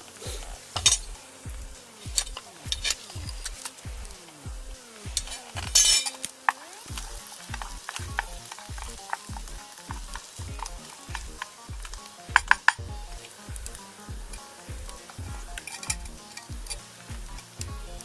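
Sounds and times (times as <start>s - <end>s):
food sizzling in a pan: 0.0s - 18.0s
loud hiss: 0.0s - 18.0s
steady low thump: 0.3s - 5.8s, 6.9s - 18.0s
utensil clinking against pan: 5.1s - 6.2s.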